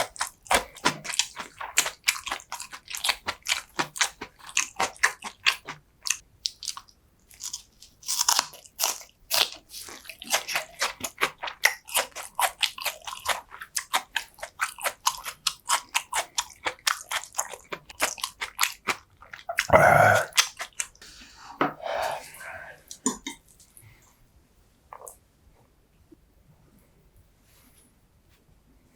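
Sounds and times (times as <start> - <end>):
chewing food with mouth clicks: 0.0 - 21.0.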